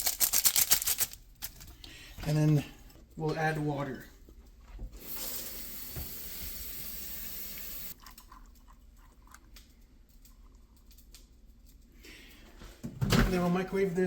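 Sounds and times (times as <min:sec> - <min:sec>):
tap water running into bowl: 0:05.0 - 0:08.0.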